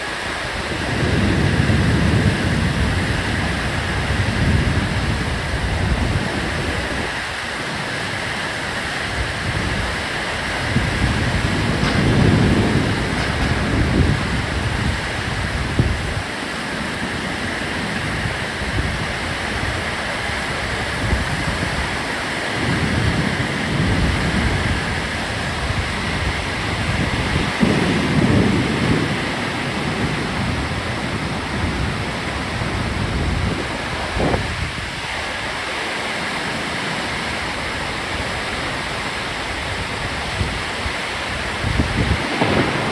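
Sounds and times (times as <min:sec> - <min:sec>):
low thunder rumbles: 0:00.0 - 0:35.6, 0:39.6 - 0:42.9
heavy rain falling: 0:00.0 - 0:42.9
sharp thunder crack: 0:10.6 - 0:16.4, 0:41.8 - 0:42.9.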